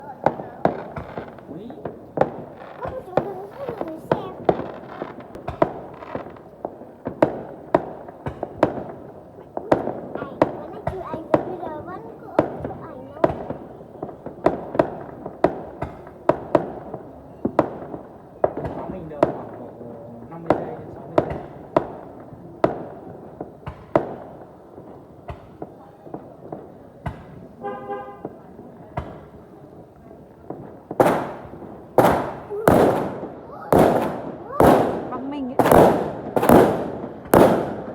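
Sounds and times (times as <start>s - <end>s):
fireworks banging: 0.0s - 37.9s
vehicle horn: 27.6s - 28.4s.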